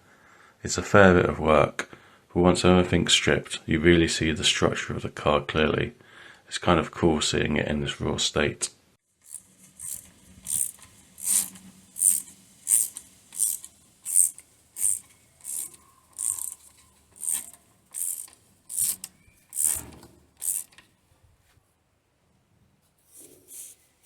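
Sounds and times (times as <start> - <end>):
ratchet spanner clicking: 9.2 - 20.9, 23.5 - 23.8.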